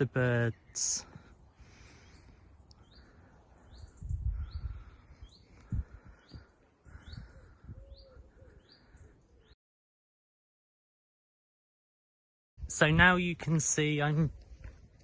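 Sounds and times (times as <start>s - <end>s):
small bird calling: 0.5s - 9.6s.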